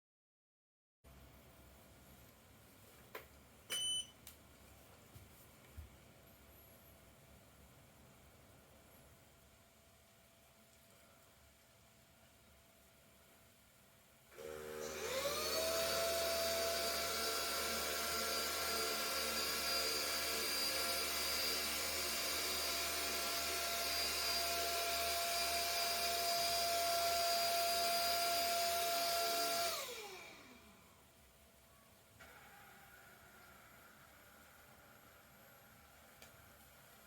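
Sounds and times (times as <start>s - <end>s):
vacuum cleaner motor whine: 14.3s - 31.0s, 32.2s - 37.0s.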